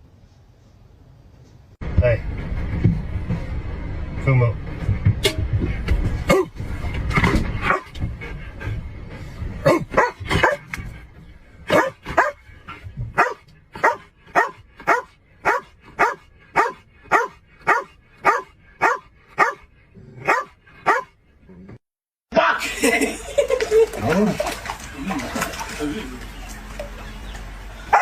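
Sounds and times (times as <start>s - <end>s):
dog barking: 6.3s - 6.5s, 7.6s - 7.9s, 9.6s - 10.7s, 11.7s - 12.4s, 13.2s - 21.2s.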